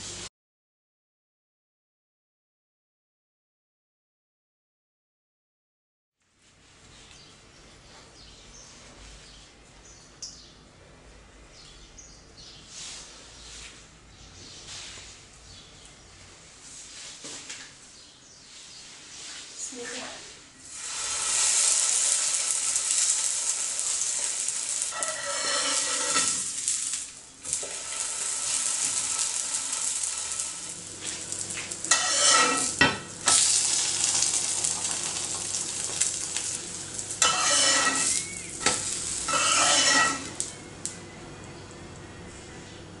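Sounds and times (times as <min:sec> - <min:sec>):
dough sizzling in oil: 0:20.6 - 0:41.0
metal spatula scraping pan: 0:24.1 - 0:26.8, 0:31.8 - 0:33.5, 0:37.2 - 0:40.5.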